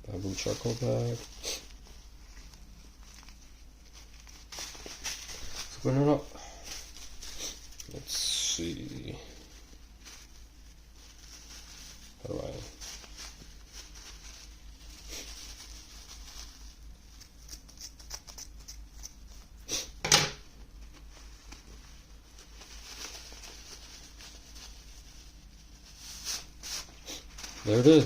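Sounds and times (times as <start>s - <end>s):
packaging rustling: 0.1s - 18.1s, 20.8s - 28.0s
packaging crackle: 2.4s - 8.1s.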